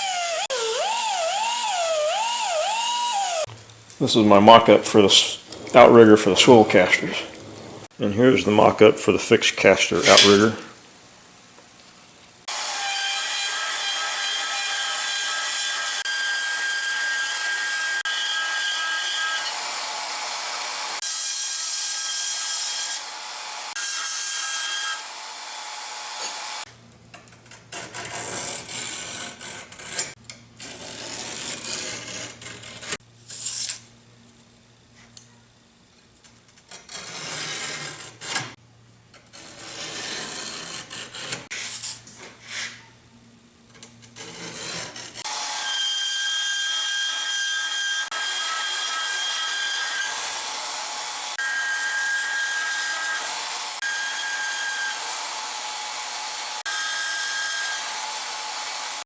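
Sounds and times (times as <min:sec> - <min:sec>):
power tool cutting steel: 0:00.0 - 0:03.5, 0:45.2 - 0:59.0.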